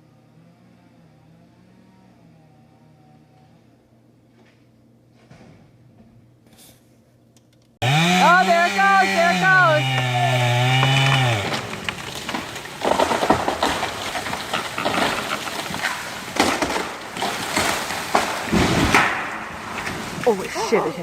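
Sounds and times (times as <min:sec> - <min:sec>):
wood cracking and splintering: 0:07.8 - 0:21.0.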